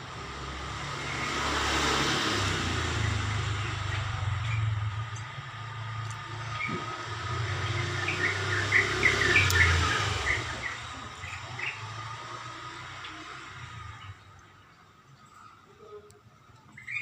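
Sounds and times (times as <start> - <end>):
vehicle rumble: 0.0 - 17.0
bird chirping: 2.8 - 12.5, 13.2 - 17.0.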